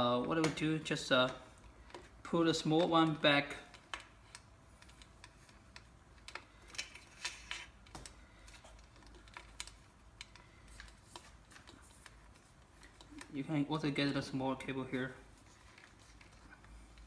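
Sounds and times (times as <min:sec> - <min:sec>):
small parts clicking and tapping: 0:01.2 - 0:13.4.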